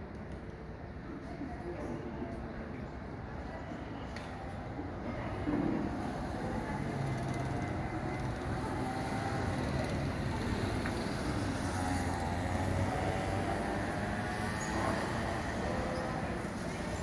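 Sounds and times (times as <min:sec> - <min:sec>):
go-kart engine running: 0:05.9 - 0:17.0.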